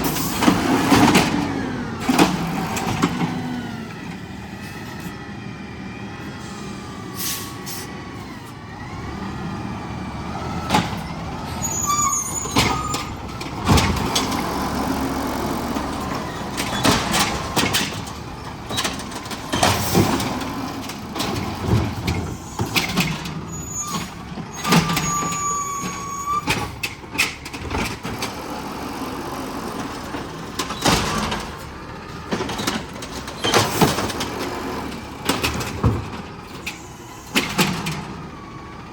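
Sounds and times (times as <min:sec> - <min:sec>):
garbage truck engine: 0:00.0 - 0:38.9
short high squeals: 0:11.6 - 0:13.2, 0:23.5 - 0:26.5
knocks and clanks: 0:12.4 - 0:28.4, 0:30.0 - 0:38.2.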